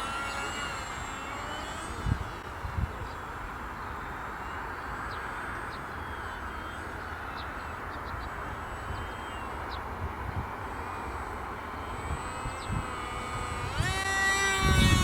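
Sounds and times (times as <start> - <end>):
wind rumbling on microphone: 1.7 - 4.0, 8.0 - 15.0.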